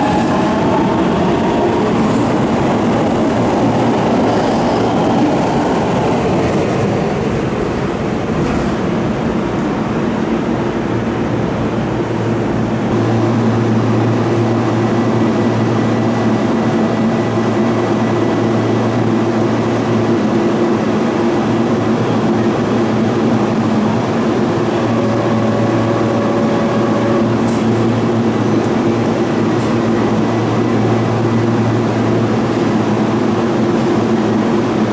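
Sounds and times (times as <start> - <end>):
electric train equipment humming: 0.0 - 34.9.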